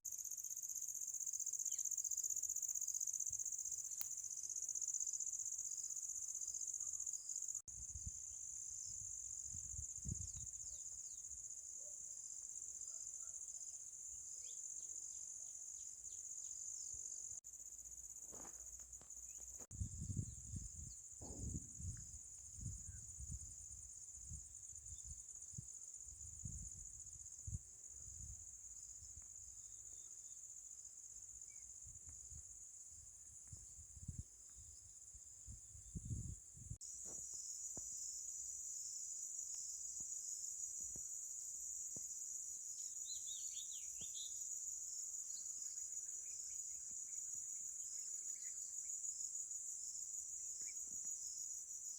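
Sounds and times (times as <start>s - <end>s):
high-pitched insect chorus trilling: 0.1s - 51.9s.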